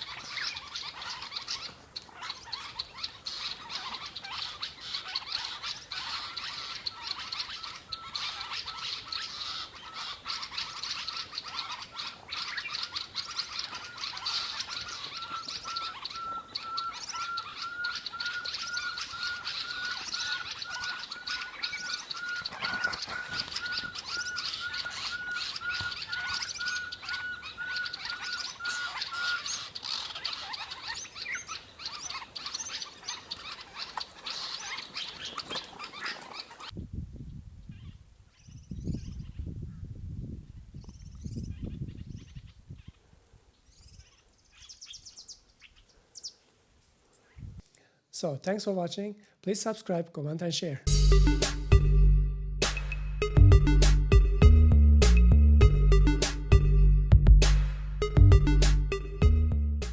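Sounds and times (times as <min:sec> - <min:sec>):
small birds chirping: 0:00.0 - 0:47.7
owlet whistled notes: 0:13.9 - 0:29.5, 0:50.9 - 0:59.9.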